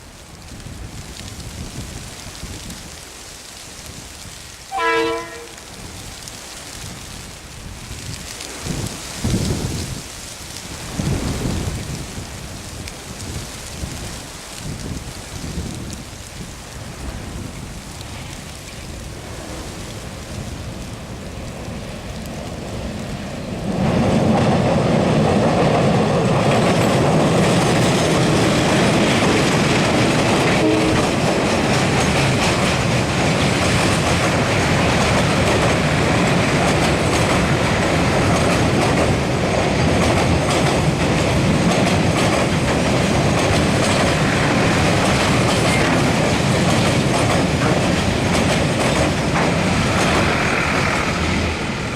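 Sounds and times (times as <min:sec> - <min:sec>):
train wheels clattering over bridge: 0:23.3 - 0:51.9.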